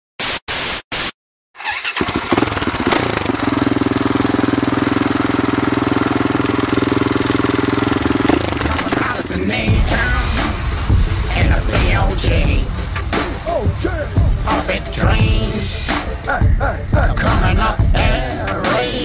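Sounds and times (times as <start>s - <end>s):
static hiss bursts: 0.2s - 1.2s, 9.7s - 16.4s
motorcycle engine running: 1.9s - 19.0s.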